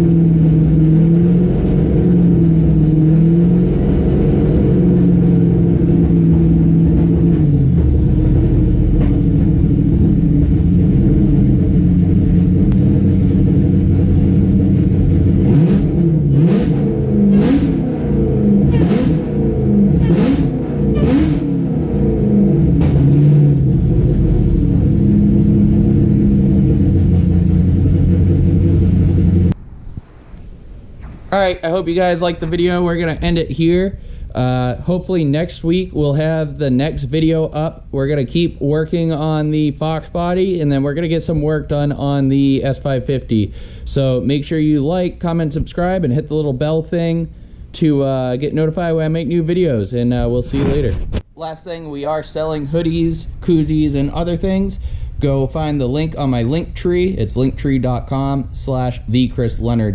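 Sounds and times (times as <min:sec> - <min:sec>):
car engine idling and revving: 0:00.0 - 0:29.6.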